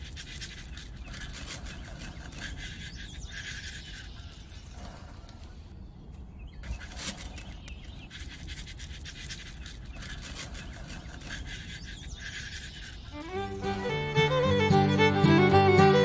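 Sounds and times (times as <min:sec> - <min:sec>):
scratchy scraping: 0:00.0 - 0:05.6, 0:06.6 - 0:16.0
small electric motor buzzing: 0:10.2 - 0:16.0.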